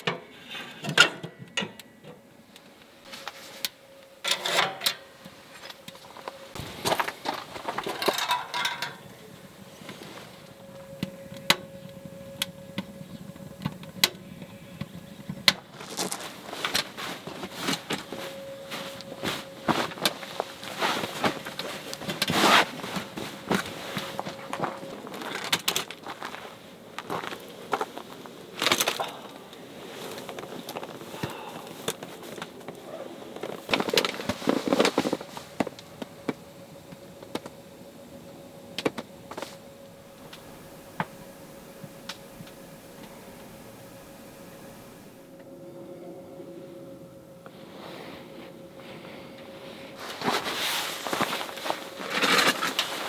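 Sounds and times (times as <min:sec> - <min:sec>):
rustling and clattering handling: 0:00.0 - 0:38.2, 0:47.5 - 0:53.0
faint steady hum: 0:00.0 - 0:53.0
wood fire crackling: 0:05.0 - 0:45.5.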